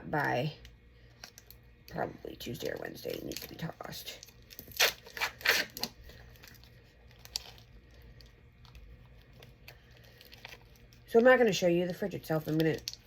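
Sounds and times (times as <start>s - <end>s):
plastic wrapper ripping: 3.0s - 11.3s.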